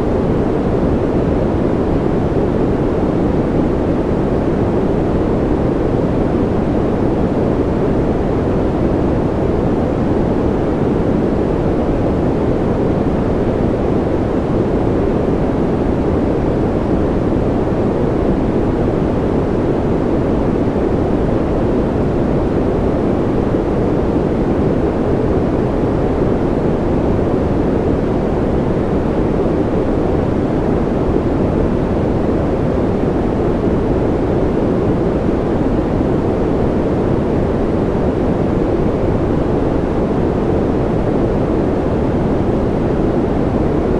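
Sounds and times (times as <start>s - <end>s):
deep white noise: 0.0s - 43.9s.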